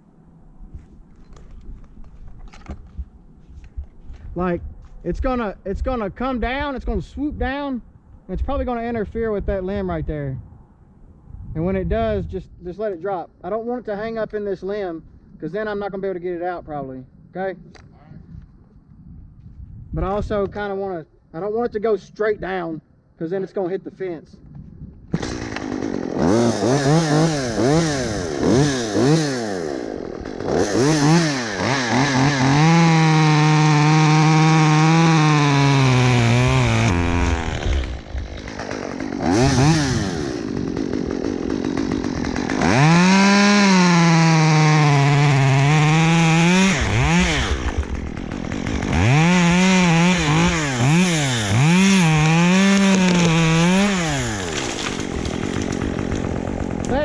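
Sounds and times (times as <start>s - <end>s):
chainsaw revving and cutting: 25.2s - 57.0s.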